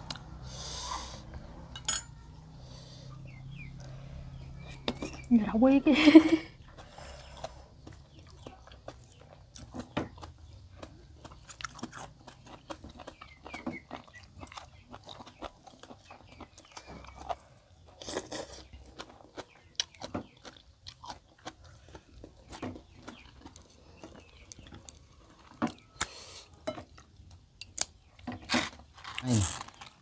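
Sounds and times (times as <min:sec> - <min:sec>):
people chewing food: 0:00.0 - 0:30.0
food crunching: 0:06.7 - 0:30.0.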